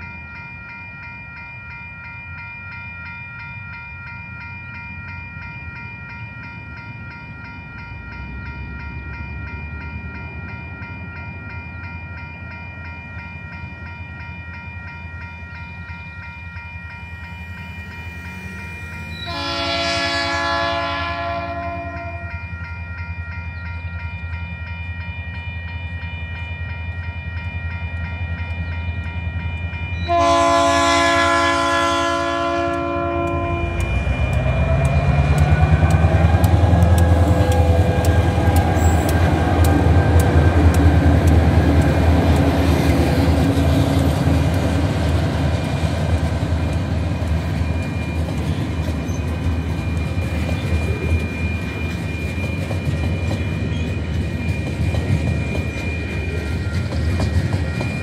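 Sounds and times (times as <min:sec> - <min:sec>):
multi-tone train horn: 0:18.3 - 0:22.5, 0:30.0 - 0:40.8
diesel engines passing: 0:32.5 - 0:54.4.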